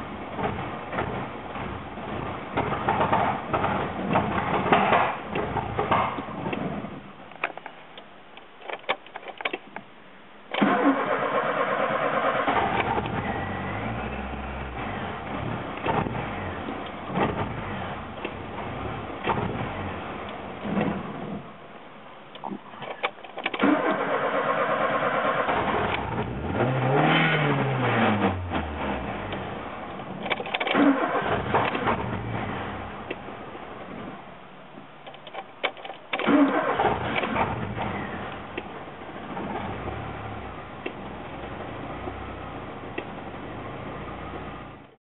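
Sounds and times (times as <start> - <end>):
starter motor cranking engine: 10.6 - 13.9, 22.9 - 27.0, 30.2 - 32.4, 35.1 - 38.3
engine firing and revving: 10.6 - 21.4, 23.6 - 33.1, 36.1 - 38.5.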